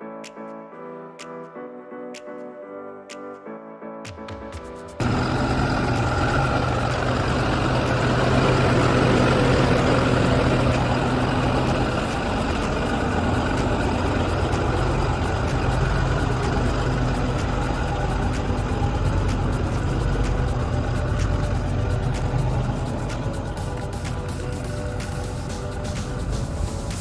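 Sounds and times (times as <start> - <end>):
truck diesel engine idling: 5.0 - 27.0.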